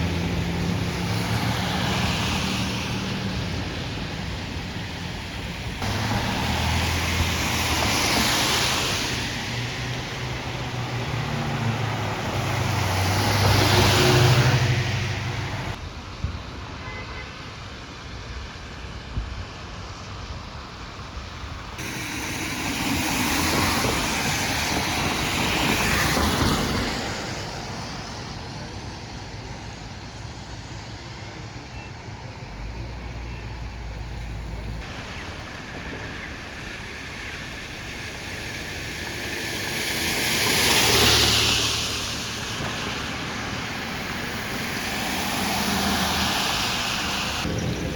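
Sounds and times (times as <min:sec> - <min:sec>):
traffic hiss: 0:00.0 - 0:47.9
vehicle passing by: 0:05.8 - 0:15.8, 0:38.9 - 0:47.9.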